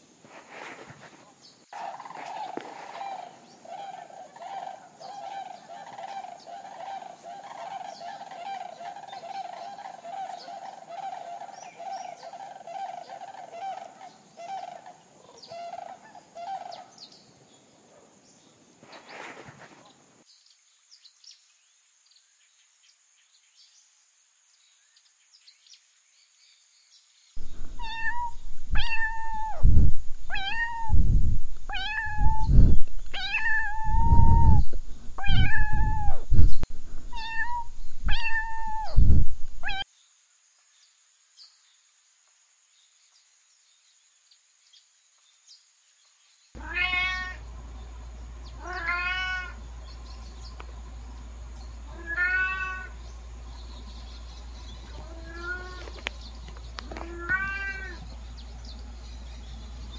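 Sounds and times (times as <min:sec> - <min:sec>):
faint steady hum: 0:00.0 - 0:20.4, 0:27.4 - 0:39.8, 0:46.6 - 0:59.9
cat meowing low: 0:27.4 - 0:36.4, 0:37.0 - 0:39.8, 0:46.6 - 0:47.4, 0:48.6 - 0:49.6, 0:51.9 - 0:53.0, 0:54.9 - 0:56.0, 0:56.8 - 0:58.0
kitten mewing: 0:27.4 - 0:36.4, 0:37.0 - 0:39.8.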